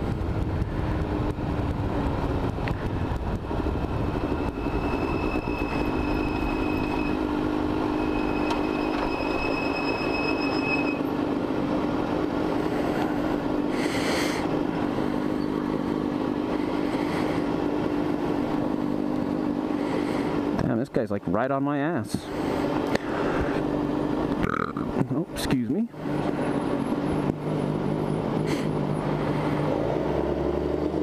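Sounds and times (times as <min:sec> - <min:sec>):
motorcycle engine running: 0:00.0 - 0:08.7, 0:11.0 - 0:20.7
road and wind noise: 0:00.0 - 0:31.0.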